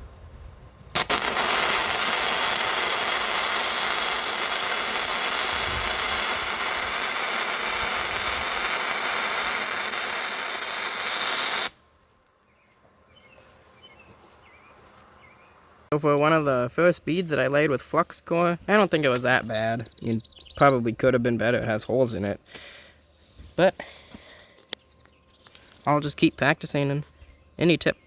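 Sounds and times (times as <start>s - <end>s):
welding arc crackling and hissing: 1.0s - 11.8s
faint birds chirping: 11.8s - 28.0s.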